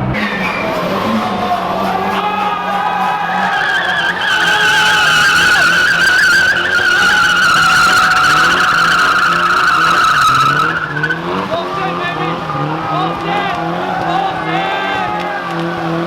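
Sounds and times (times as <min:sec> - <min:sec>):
car engine at high revs: 0:00.0 - 0:16.0
tyres squealing: 0:00.0 - 0:16.0.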